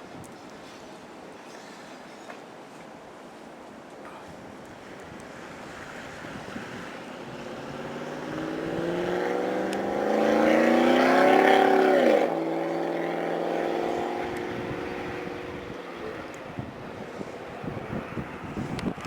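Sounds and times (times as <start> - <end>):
pickup truck engine revving: 6.5 - 16.7.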